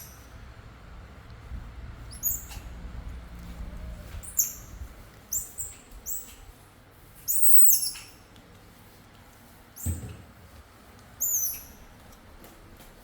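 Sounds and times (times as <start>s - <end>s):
baby monkey squeaking: 2.1s - 2.7s, 4.2s - 4.7s, 5.3s - 6.4s, 7.3s - 8.2s, 11.2s - 11.8s.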